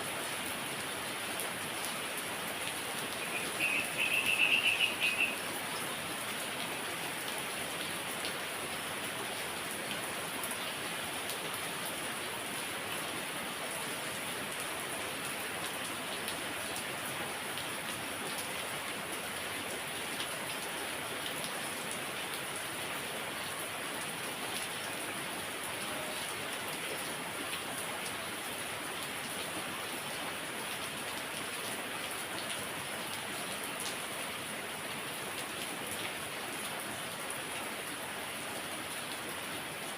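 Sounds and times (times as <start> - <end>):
heavy rain falling: 0.0 - 39.9
rain drops ticking: 0.9 - 22.6.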